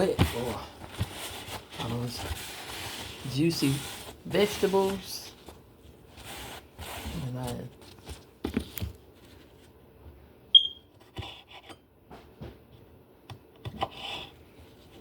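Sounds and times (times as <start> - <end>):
short high electronic beep: 10.6 - 10.8.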